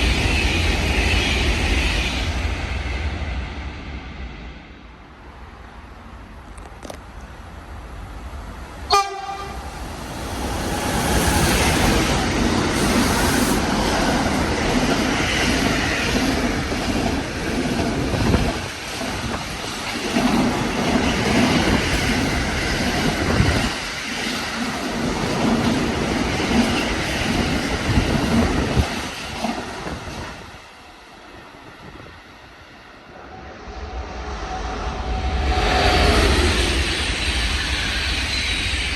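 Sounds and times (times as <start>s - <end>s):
train wheels rumbling on rails: 0.0s - 38.9s
train horn blast: 8.9s - 9.8s.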